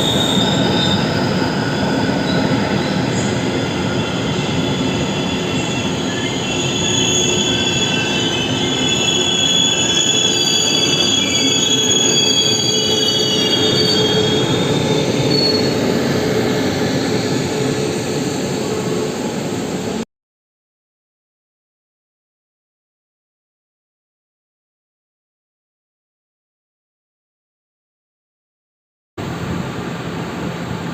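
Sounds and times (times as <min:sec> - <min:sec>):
train brakes squealing: 0:00.0 - 0:20.0
train rumble: 0:00.0 - 0:20.0.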